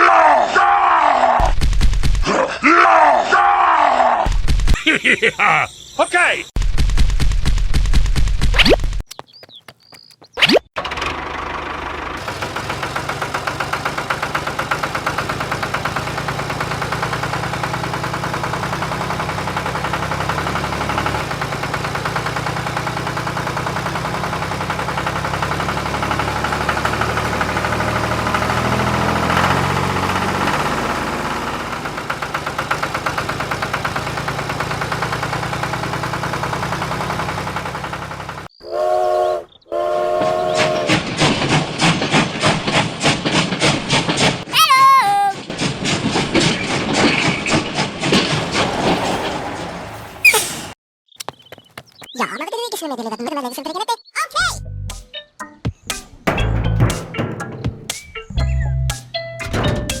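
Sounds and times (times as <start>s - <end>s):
vehicle engine chugging: 9.1s - 38.6s, 48.1s - 50.8s.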